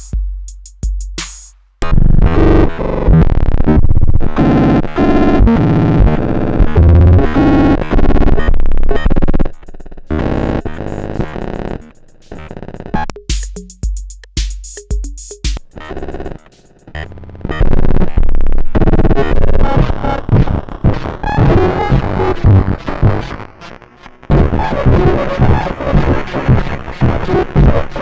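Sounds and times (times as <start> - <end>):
drum machine clicks and thumps: 0.0 - 1.6, 9.4 - 17.0, 19.8 - 23.3, 24.3 - 28.0
synthesizer notes: 10.1 - 13.9, 19.4 - 28.0.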